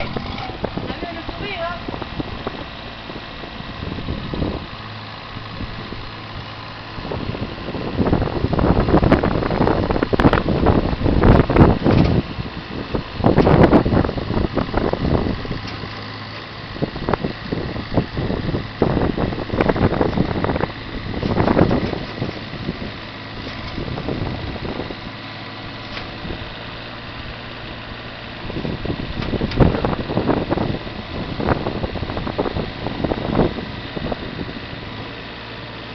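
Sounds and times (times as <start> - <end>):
wind buffeting microphone: 0.0 - 35.2
digger engine running: 0.0 - 35.9.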